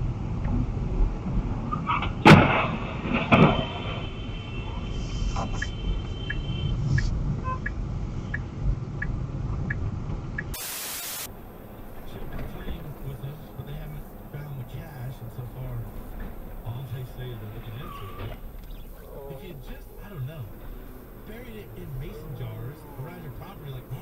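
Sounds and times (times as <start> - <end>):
rumbling vehicle noise: 0.0 - 24.0
car crash impacts: 1.8 - 4.3, 11.4 - 24.0
short burst of hiss: 10.6 - 11.3.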